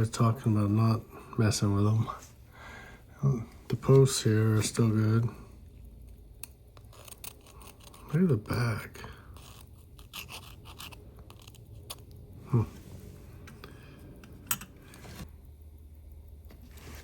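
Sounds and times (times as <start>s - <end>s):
small tools scratching and scraping: 6.4s - 12.2s.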